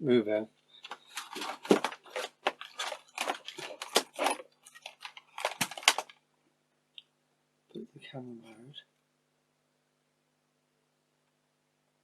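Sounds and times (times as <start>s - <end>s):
faint steady hum: 0.0s - 12.0s
small parts clicking and rattling: 0.8s - 6.2s.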